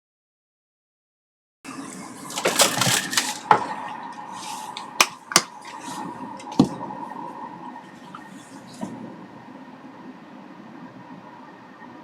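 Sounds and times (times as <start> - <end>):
faint steady hum: 1.7 - 12.0
small hard objects clattering: 2.3 - 3.5.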